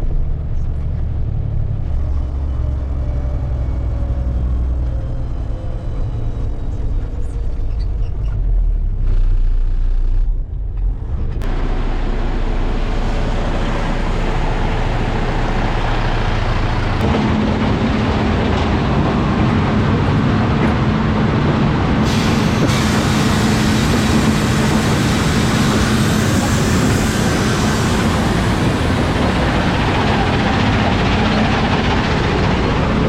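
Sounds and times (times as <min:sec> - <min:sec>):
diesel truck engine running: 0:00.0 - 0:33.0
loud steady rushing noise: 0:11.4 - 0:33.0.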